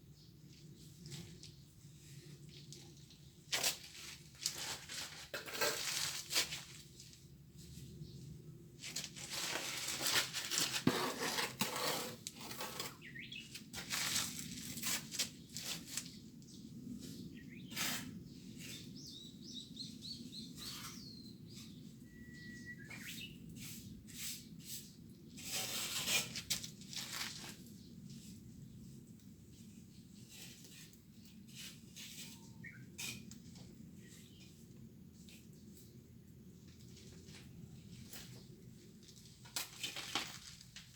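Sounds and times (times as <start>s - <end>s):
trowel scraping mortar: 4.5s - 6.6s, 9.3s - 13.2s, 23.6s - 26.6s
small bird chirping: 13.0s - 13.5s, 18.6s - 23.4s, 32.2s - 33.0s
bird whistle: 22.0s - 23.4s.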